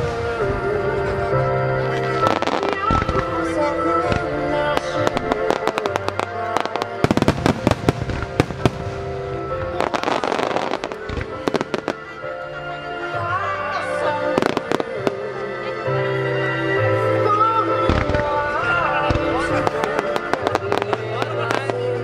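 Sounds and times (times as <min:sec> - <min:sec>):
music: 0:00.0 - 0:22.0
fireworks bursts: 0:01.9 - 0:12.2, 0:14.3 - 0:15.2, 0:17.8 - 0:21.9.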